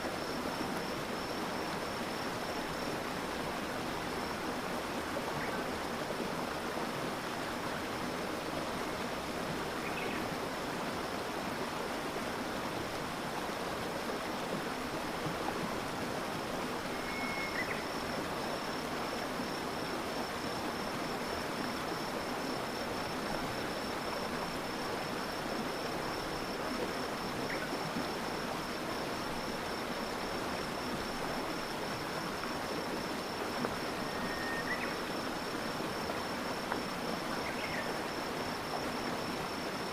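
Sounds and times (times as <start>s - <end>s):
stream flowing and babbling: 0.0s - 39.9s
insect pulsing trill: 16.8s - 24.7s, 32.5s - 36.6s.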